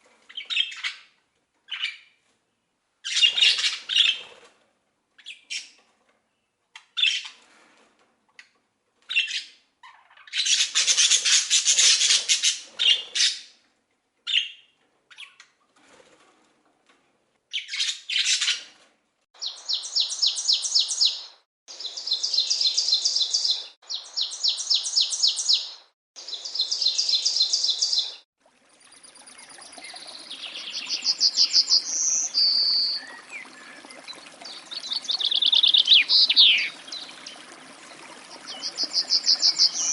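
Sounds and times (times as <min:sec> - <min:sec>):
songbirds calling and singing: 0:00.3 - 0:02.2, 0:03.0 - 0:04.3, 0:19.4 - 0:39.9
bird trilling: 0:34.8 - 0:36.8.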